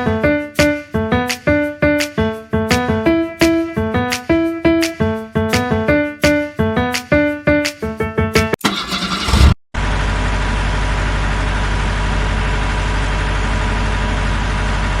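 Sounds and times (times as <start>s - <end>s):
music track: 0.0s - 8.6s
engine idling: 8.6s - 15.0s.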